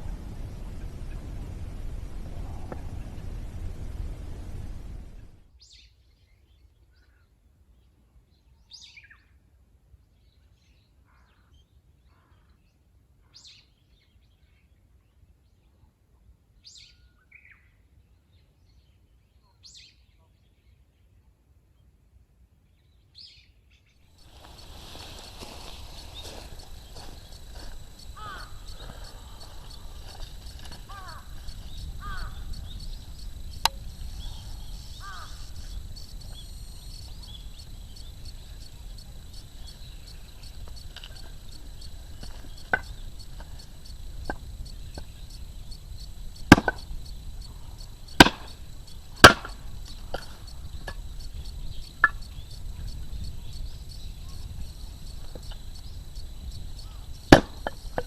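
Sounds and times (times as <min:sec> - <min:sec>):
sharp knocks: 0:46.5 - 0:46.9, 0:48.2 - 0:48.5, 0:49.2 - 0:51.0.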